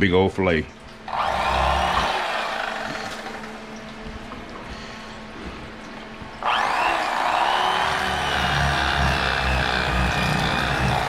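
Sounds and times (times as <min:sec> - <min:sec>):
small electric motor whining: 0:01.1 - 0:03.7, 0:06.4 - 0:11.0.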